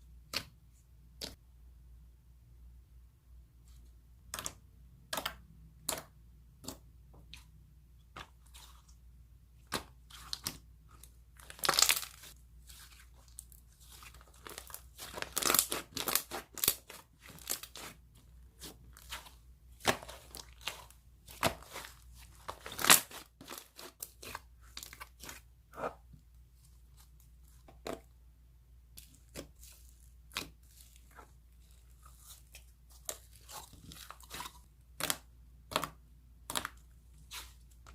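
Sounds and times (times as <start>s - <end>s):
slime clicking and crackling: 11.4s - 25.4s, 33.0s - 37.9s.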